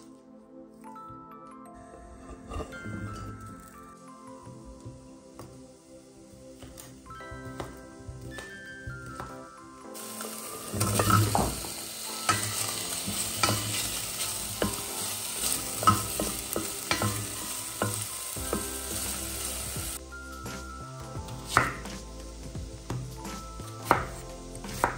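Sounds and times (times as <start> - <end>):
spatula scraping a pot: 2.0 - 3.9, 10.0 - 20.0
meat sizzling in a pot: 2.1 - 24.9.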